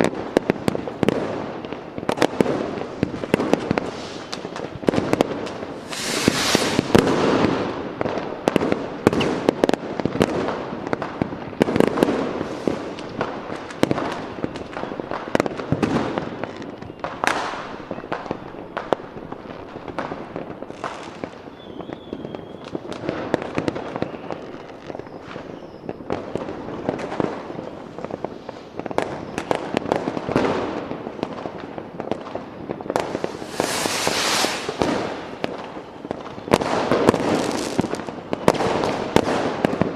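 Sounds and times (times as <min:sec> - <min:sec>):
fireworks bangs and crackling: 0:00.0 - 0:39.9
firework whistles: 0:02.9 - 0:07.8, 0:09.1 - 0:09.5, 0:12.1 - 0:13.2, 0:20.6 - 0:23.0, 0:23.6 - 0:26.1, 0:32.9 - 0:38.6.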